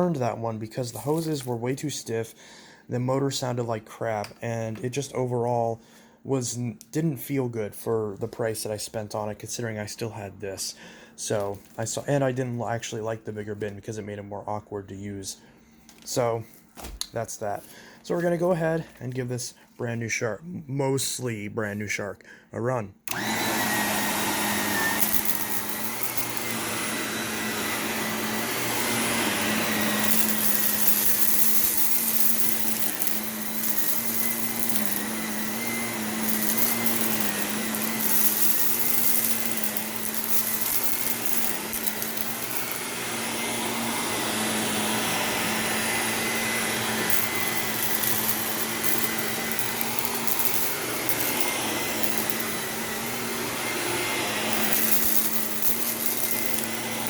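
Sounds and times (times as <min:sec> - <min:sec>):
grit crackling up vacuum: 0:23.1 - 0:57.0
vacuum cleaner motor humming: 0:23.1 - 0:57.0.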